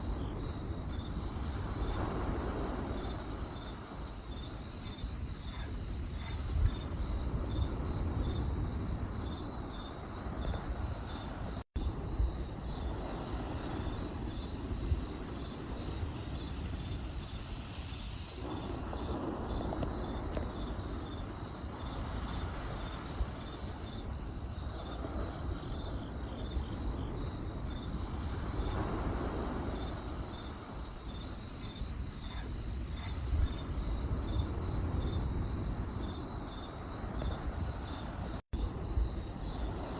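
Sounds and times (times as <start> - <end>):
crackling campfire: 0.0 - 39.9
crickets chirping: 0.0 - 39.9
campfire pops: 18.4 - 21.3.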